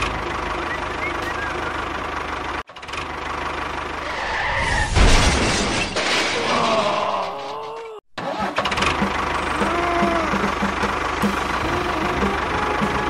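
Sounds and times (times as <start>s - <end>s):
tractor engine running: 0.0s - 4.1s, 8.2s - 13.0s.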